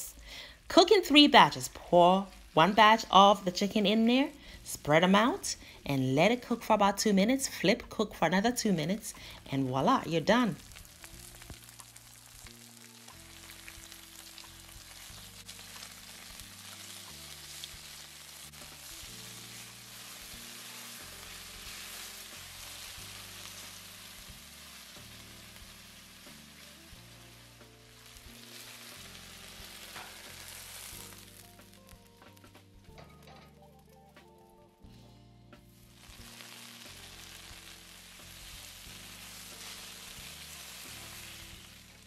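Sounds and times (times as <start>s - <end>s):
soft background music: 0.0s - 42.0s
chicken sizzling in hot oil: 8.6s - 32.7s, 35.7s - 42.0s
spatula scraping wok: 28.0s - 31.4s.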